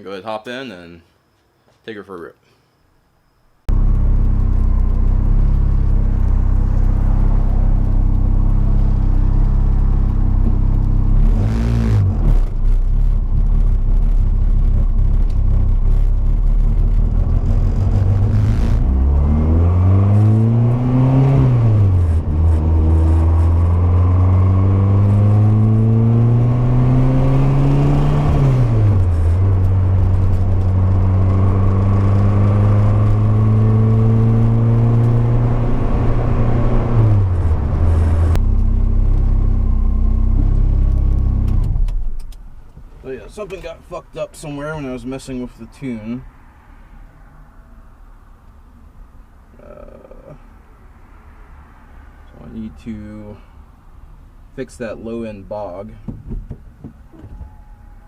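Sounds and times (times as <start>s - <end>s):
turbocharged car engine revving: 3.7s - 41.8s.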